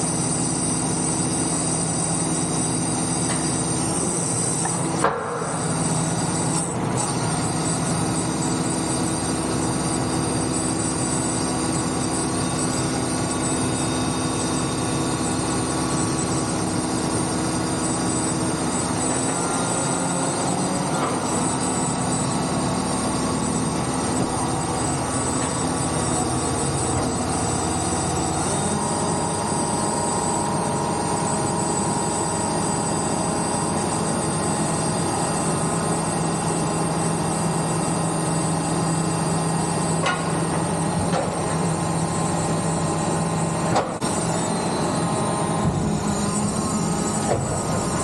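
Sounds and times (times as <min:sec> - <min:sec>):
tractor engine running: 0:03.2 - 0:36.0, 0:39.5 - 0:48.0
faint high whine: 0:05.4 - 0:40.7.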